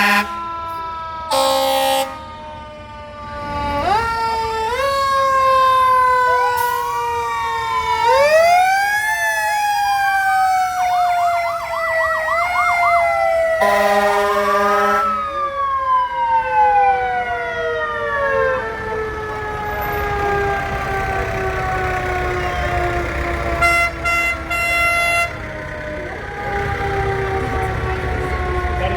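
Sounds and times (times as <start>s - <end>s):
fire truck sirens wailing: 0.0s - 28.9s
siren yelp: 0.0s - 28.9s
horn blast: 13.6s - 15.2s, 23.4s - 25.5s.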